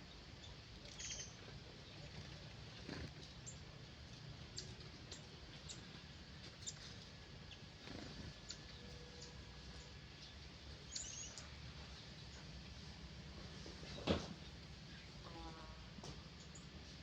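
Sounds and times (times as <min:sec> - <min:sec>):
faint high bird chirps: 0:00.4 - 0:02.4, 0:10.2 - 0:11.6.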